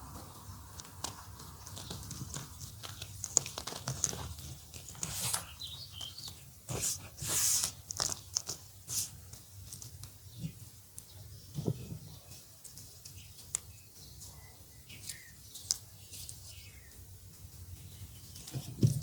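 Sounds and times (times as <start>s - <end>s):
gritty hiss: 2.0s - 9.5s
chalk crunching: 2.3s - 9.2s.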